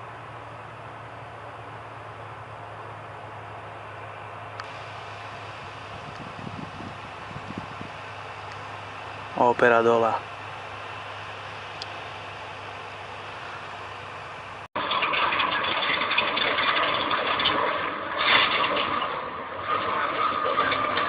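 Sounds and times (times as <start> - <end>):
heavy equipment engine running: 0.0 - 14.7.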